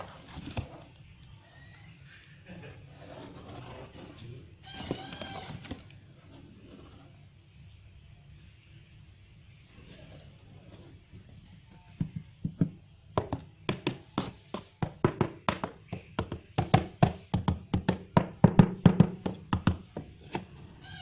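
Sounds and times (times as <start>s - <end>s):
tapping on cardboard box: 12.0s - 20.5s.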